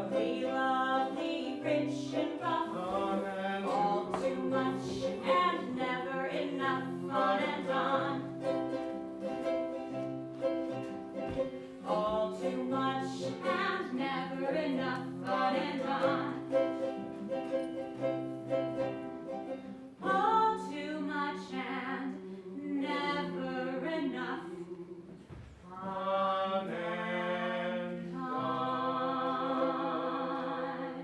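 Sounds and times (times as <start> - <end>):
voices singing in harmony: 0.0 - 8.8, 11.8 - 17.3, 20.0 - 31.0.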